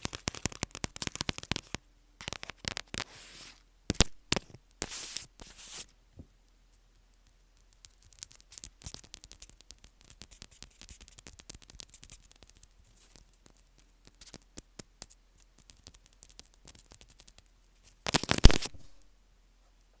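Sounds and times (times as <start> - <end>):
earphones crackling when handled: 0.0 - 5.9, 18.0 - 19.1.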